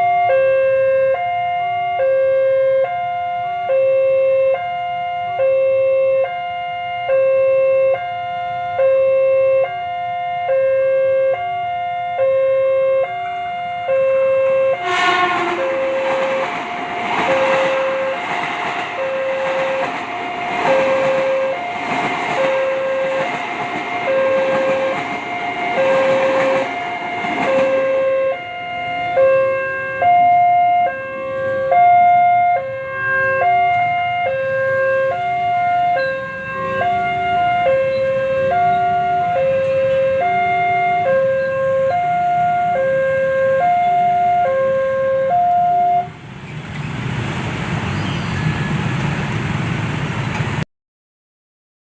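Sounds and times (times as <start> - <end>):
two-tone level crossing alarm: 0.0 - 46.1
train wheels on rails: 14.5 - 30.4, 35.1 - 44.8, 46.0 - 50.6.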